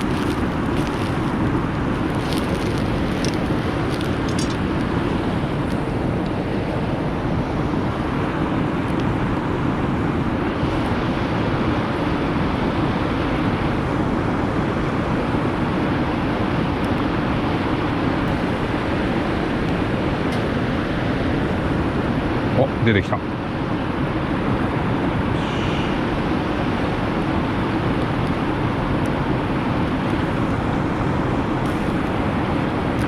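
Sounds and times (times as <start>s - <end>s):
wood fire crackling: 0.0s - 5.8s.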